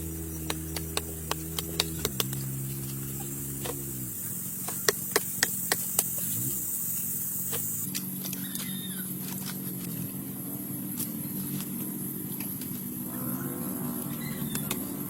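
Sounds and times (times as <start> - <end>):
steady motor hum: 0.0 - 15.0
sharp irregular clicks: 0.4 - 2.5, 4.7 - 6.2.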